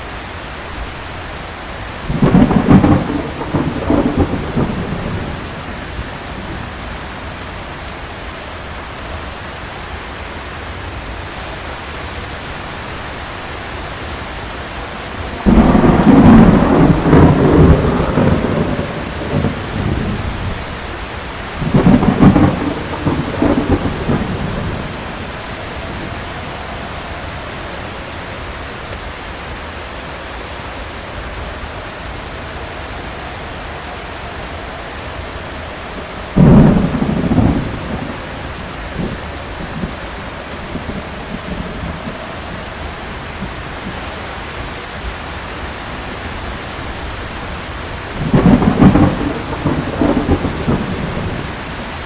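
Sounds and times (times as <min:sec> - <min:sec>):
heavy rain falling: 0:00.0 - 0:52.0
rolls of thunder: 0:02.0 - 0:07.1, 0:14.8 - 0:28.4, 0:32.8 - 0:44.1, 0:47.8 - 0:52.0.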